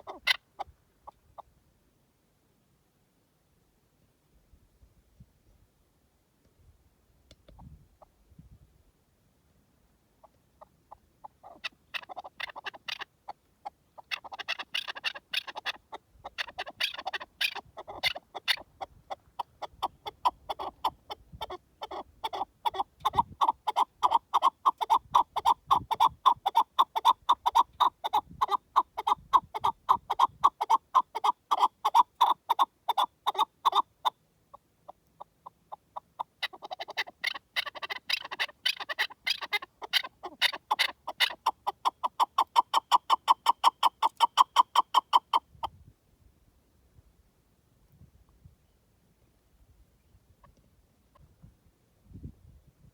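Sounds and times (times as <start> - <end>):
partridge clucking calls: 0.0 - 1.5, 10.2 - 45.7.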